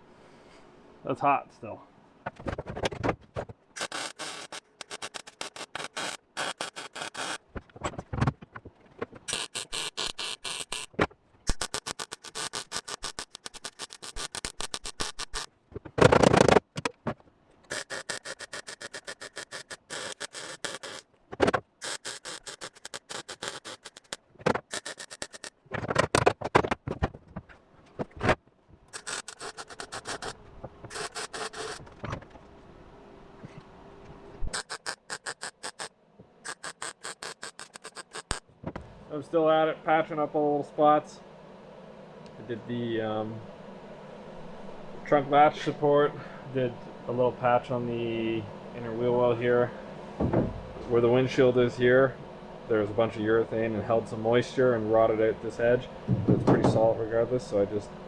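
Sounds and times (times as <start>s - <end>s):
welding crackle: 3.8s - 7.4s, 9.3s - 16.7s, 17.7s - 26.7s, 28.9s - 31.8s, 34.5s - 35.9s, 36.5s - 38.4s.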